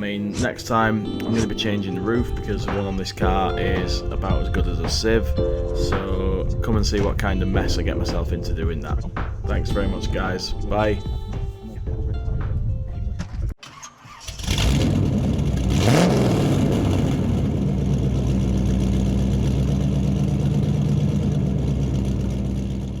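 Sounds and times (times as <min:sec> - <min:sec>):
car engine starting and idling: 0:13.6 - 0:23.0
engine revving: 0:14.1 - 0:23.0.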